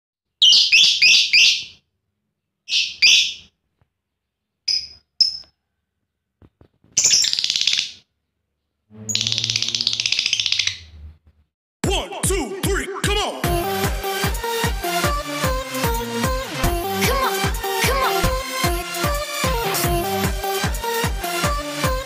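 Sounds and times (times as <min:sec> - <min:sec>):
lovebird chirping and trilling: 0:00.4 - 0:01.8, 0:02.7 - 0:03.6, 0:04.7 - 0:05.6, 0:07.0 - 0:08.1, 0:09.0 - 0:11.0.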